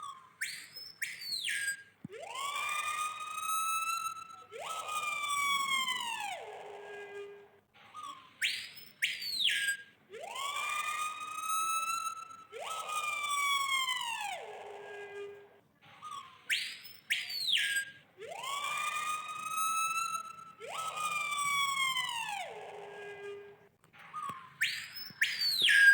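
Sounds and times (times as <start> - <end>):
bird imitating a siren: 0.0 - 6.6, 16.0 - 23.5, 24.1 - 25.9.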